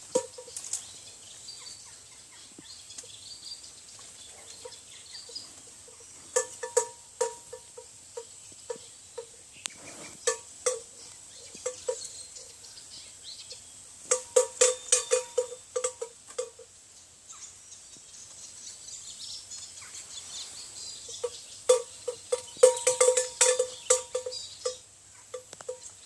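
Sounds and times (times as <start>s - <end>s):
metal livestock bells clanking: 5.9s - 9.4s, 10.2s - 12.5s, 14.1s - 16.7s, 21.1s - 26.0s.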